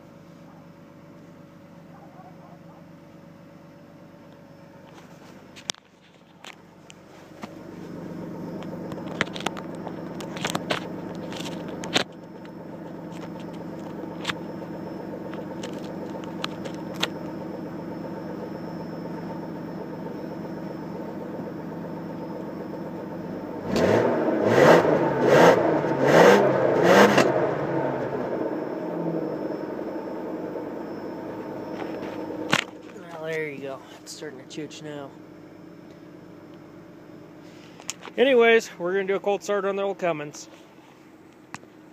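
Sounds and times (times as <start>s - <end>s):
car engine idling: 0.0s - 41.9s
engine revving surges: 23.5s - 29.4s.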